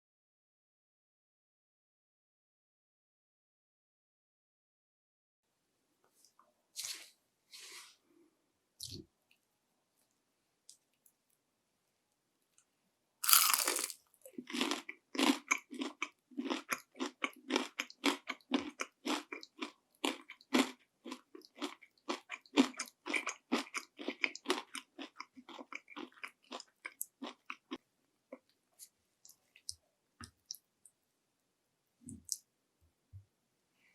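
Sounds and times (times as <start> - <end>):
crunchy biting and chewing: 13.2 - 27.8.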